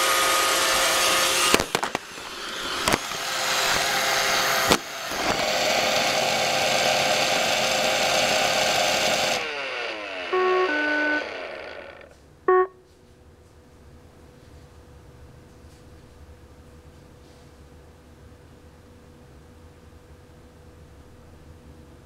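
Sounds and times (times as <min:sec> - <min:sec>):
robot vacuum whirring: 0:00.0 - 0:12.1
motors winding down: 0:00.0 - 0:12.2
electronic beeps: 0:10.3 - 0:11.2, 0:12.5 - 0:12.8.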